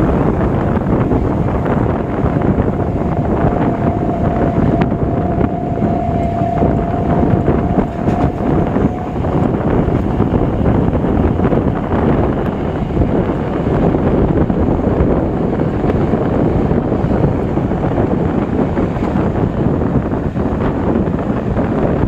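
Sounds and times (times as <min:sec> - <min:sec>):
train wheels rumbling on track: 0:00.0 - 0:22.0
wind buffeting microphone: 0:00.0 - 0:22.0
faint high whine: 0:00.8 - 0:13.0.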